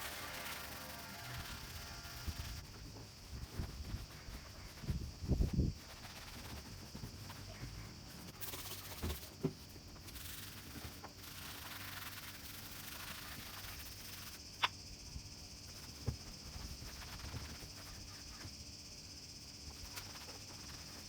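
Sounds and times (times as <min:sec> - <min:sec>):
surface being rubbed by hand: 0:00.0 - 0:09.4.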